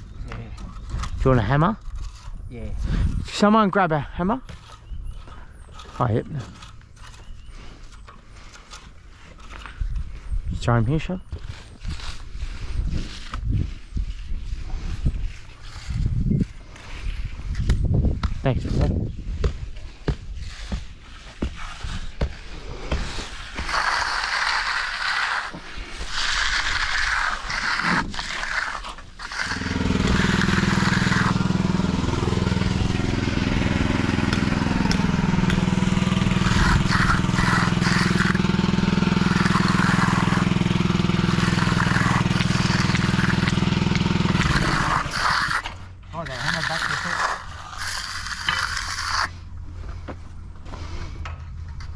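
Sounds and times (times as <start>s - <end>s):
tools scraping wet concrete: 0.0s - 18.9s, 19.7s - 50.2s
motor running: 28.4s - 45.7s.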